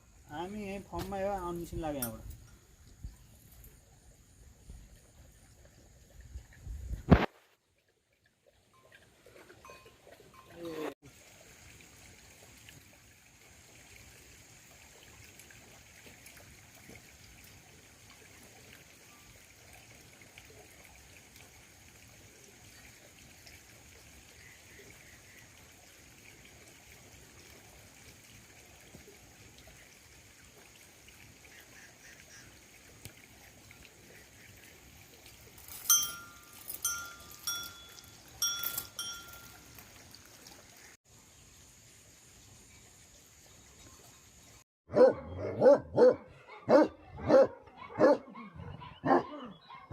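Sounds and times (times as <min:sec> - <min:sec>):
faint steady hiss: 0:00.0 - 0:05.7
livestock bell clinking: 0:09.6 - 0:10.9, 0:35.6 - 0:40.0.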